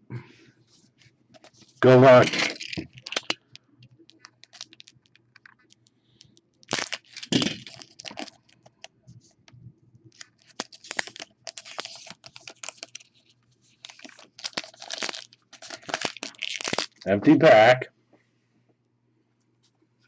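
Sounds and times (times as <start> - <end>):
card pack wrapper crinkling: 1.4 - 8.9, 10.1 - 17.1.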